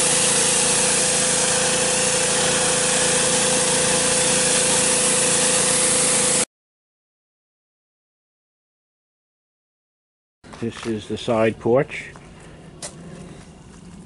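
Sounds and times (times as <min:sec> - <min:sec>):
pressure washer running: 0:00.0 - 0:06.5.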